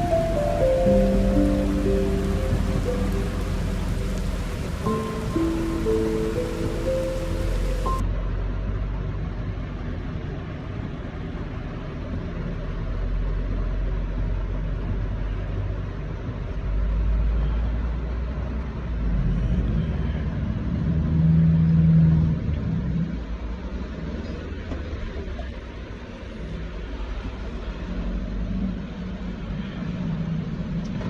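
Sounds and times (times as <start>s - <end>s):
humming engine: 0.0s - 11.3s
low rumble of road vehicles: 0.0s - 31.0s.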